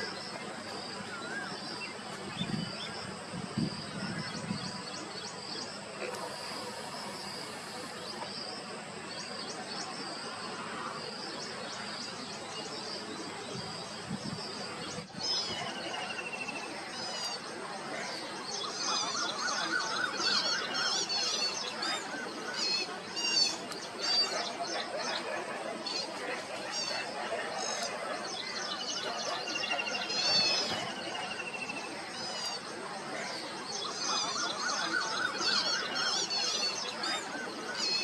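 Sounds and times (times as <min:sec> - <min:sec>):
outdoor background hiss: 0:00.0 - 0:38.0.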